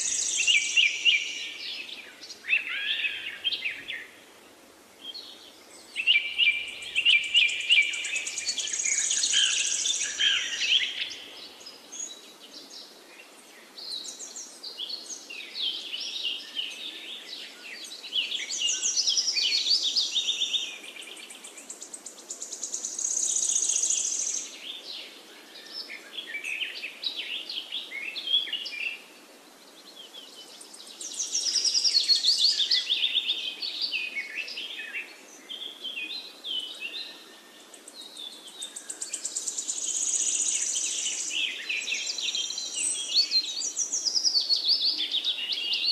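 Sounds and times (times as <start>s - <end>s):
birds chirping and trilling: 0.0s - 4.2s, 5.1s - 12.3s, 29.9s - 45.9s
faint steady hiss: 0.0s - 45.9s.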